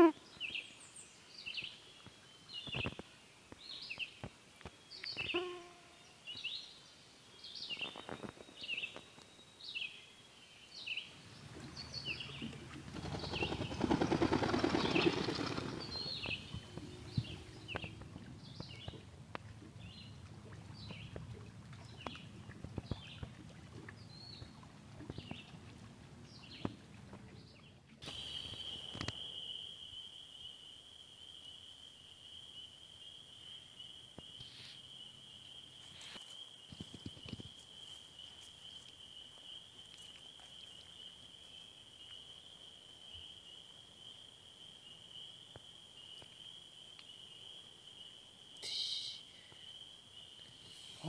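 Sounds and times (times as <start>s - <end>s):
high-pitched insect trill: 28.1s - 51.0s
faint short chirps: 48.6s - 49.3s.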